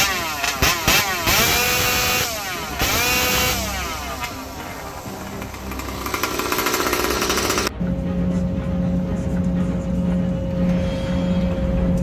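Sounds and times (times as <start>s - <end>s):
chainsaw revving: 0.0s - 7.7s.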